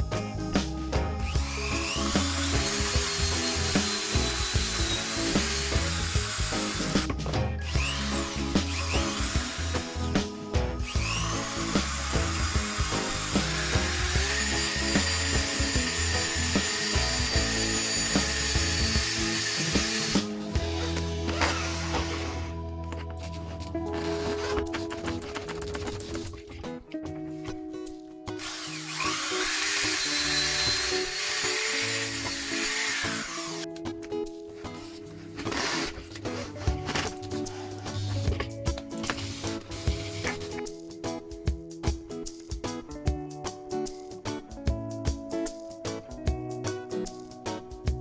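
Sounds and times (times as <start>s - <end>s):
background music with a beat: 0.0s - 31.5s, 36.3s - 48.0s
electric power tool whining: 1.3s - 23.1s, 28.4s - 33.8s, 35.4s - 38.4s.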